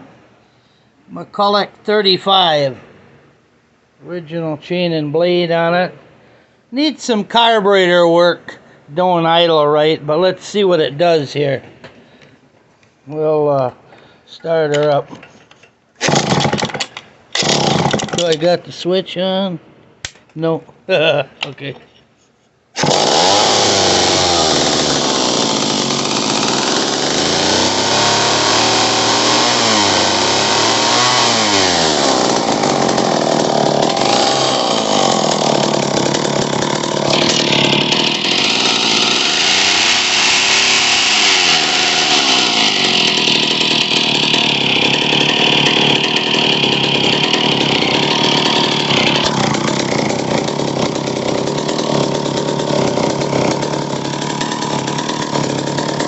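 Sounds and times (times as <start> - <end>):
person speaking: 1.1 - 2.8, 6.7 - 11.6, 13.0 - 15.2, 18.1 - 19.6, 20.3 - 21.9
chainsaw engine revving: 16.0 - 18.4, 22.8 - 56.0.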